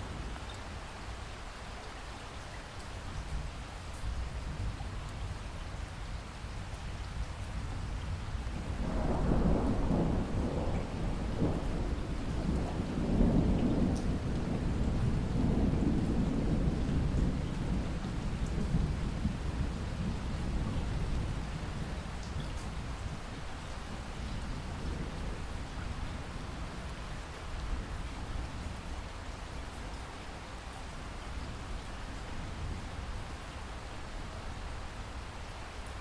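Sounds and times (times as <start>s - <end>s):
steady rain: 0.0s - 36.0s
thunder rumbling: 8.5s - 22.1s.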